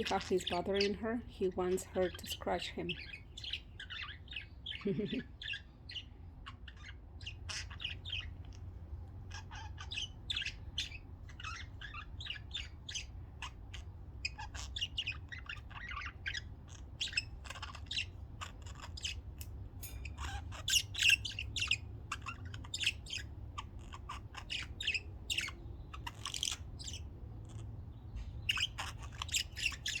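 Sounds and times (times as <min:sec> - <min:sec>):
budgerigars chattering: 0:00.0 - 0:30.0.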